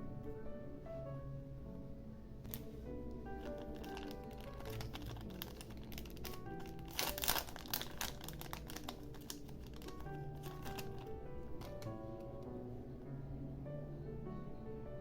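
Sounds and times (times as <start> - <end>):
soft background music: 0.0 - 15.0
paper crinkling: 2.4 - 12.0.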